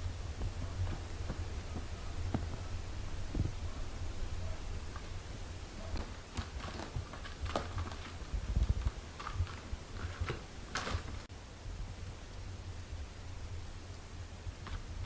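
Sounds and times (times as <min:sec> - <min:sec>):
rustling in bedding: 0:00.0 - 0:11.3
light scratches and taps: 0:00.3 - 0:03.6.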